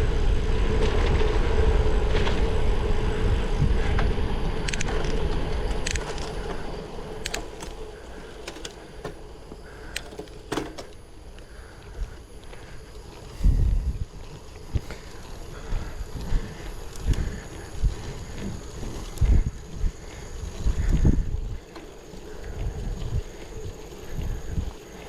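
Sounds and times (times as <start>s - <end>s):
steady hum: 0.0s - 25.0s
wind and road rumble: 0.0s - 25.0s
sharp clicks and ticks: 4.6s - 6.6s, 7.2s - 11.0s.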